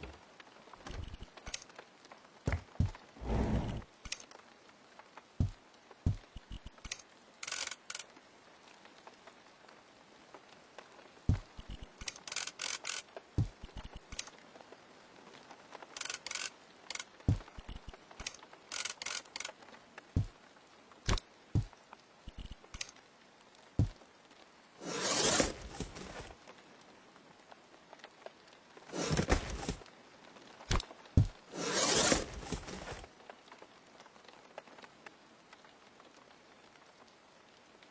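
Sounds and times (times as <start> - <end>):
scraping or rustling strokes: 3.2 - 3.8, 24.8 - 26.3, 28.9 - 29.8, 31.2 - 33.1.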